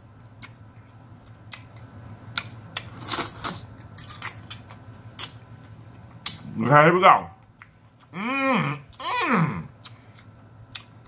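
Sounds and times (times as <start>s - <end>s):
lip smacks: 9.8s - 11.0s.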